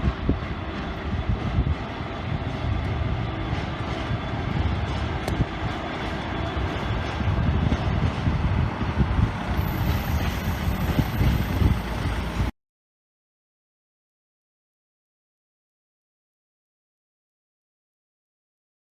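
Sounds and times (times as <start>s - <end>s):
train rumbling past: 0.0s - 12.5s.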